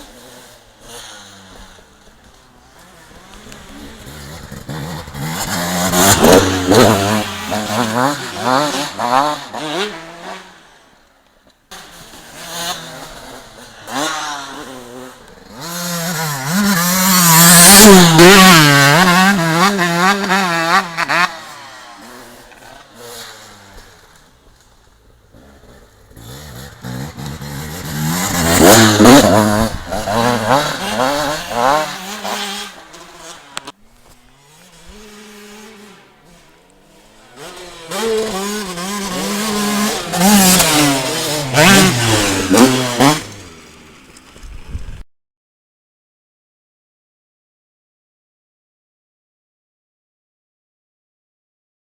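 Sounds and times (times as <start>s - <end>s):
motocross bikes revving: 0.0s - 44.4s.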